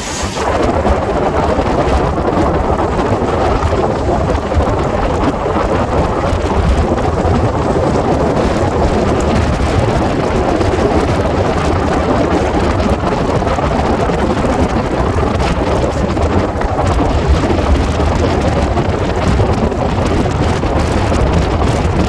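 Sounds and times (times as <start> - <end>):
moving passenger train rumble: 0.0 - 17.5
wind rushing over microphone: 0.0 - 22.0.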